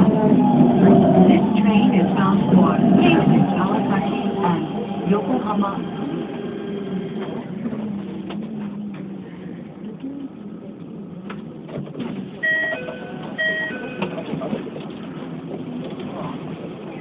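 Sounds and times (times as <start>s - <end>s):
train running hum: 0.0s - 17.0s
level crossing bell ringing: 12.4s - 14.2s.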